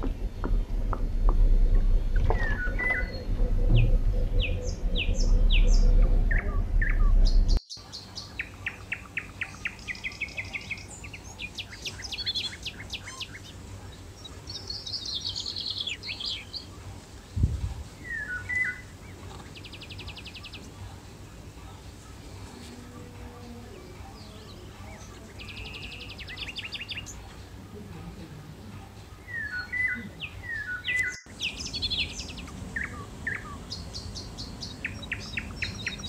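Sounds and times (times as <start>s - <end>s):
loud low rumble: 0.0s - 7.6s
small birds chirping and trilling: 1.4s - 27.9s, 28.5s - 36.0s.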